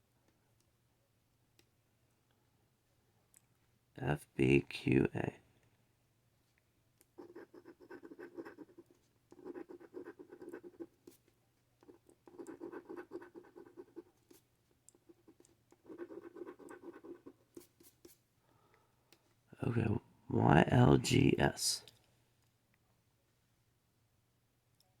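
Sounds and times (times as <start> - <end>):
scratching lottery ticket: 7.2 - 18.2.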